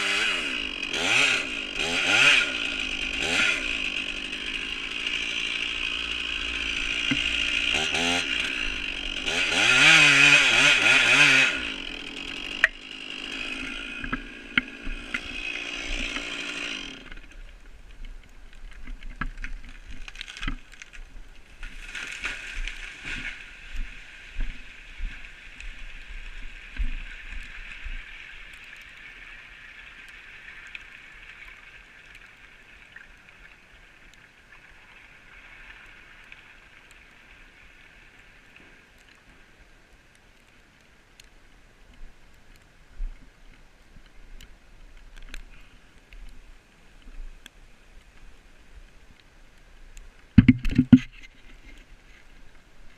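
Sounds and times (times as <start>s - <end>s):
chainsaw revving: 0.0s - 17.4s
tree cracking and crashing down: 0.0s - 17.5s, 18.5s - 28.1s.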